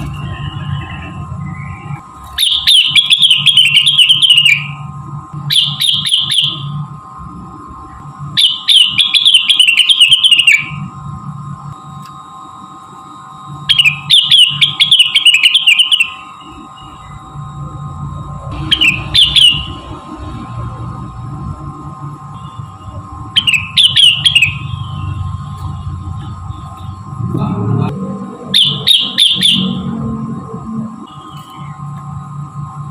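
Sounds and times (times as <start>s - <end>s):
steady background hum: 0.0s - 32.9s
bird chattering song: 0.8s - 4.8s, 5.5s - 6.7s, 8.4s - 10.8s, 13.7s - 16.3s, 18.6s - 19.8s, 23.4s - 24.8s, 28.6s - 29.9s.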